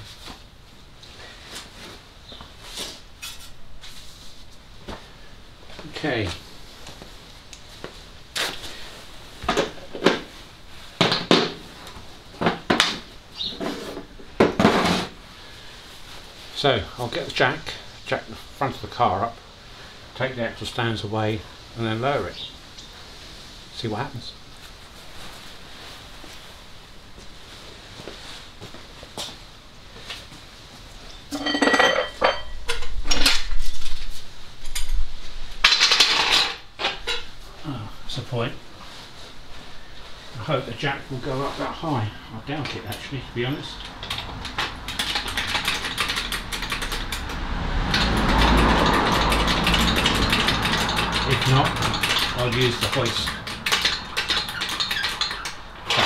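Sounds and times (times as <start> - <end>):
metallic clanking and clinking: 31.3 - 32.8, 47.9 - 56.0
metal tools clanking: 31.3 - 32.9.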